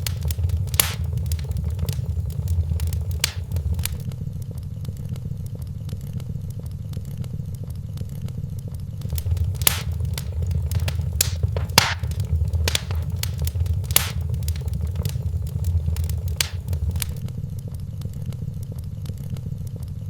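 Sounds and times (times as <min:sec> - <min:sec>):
fire crackling and popping: 0:00.0 - 0:04.1, 0:09.0 - 0:17.2
fire flames rumbling: 0:00.0 - 0:04.1, 0:09.0 - 0:17.2.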